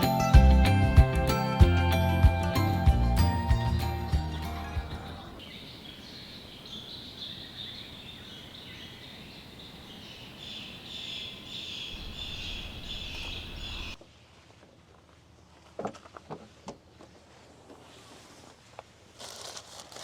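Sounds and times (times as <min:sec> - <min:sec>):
insects buzzing: 0:05.4 - 0:14.0.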